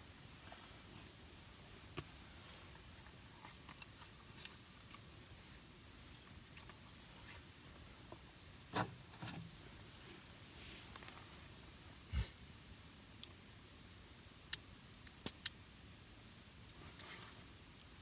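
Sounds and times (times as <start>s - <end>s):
campfire crackling: 0.0s - 18.0s
fire pops: 14.4s - 15.8s.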